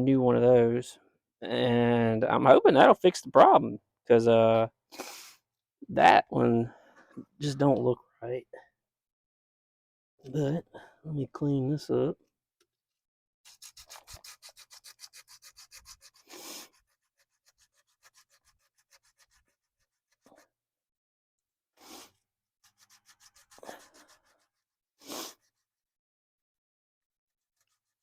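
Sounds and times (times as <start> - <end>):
hand scrubbing strokes: 13.5 - 20.4, 21.8 - 25.6.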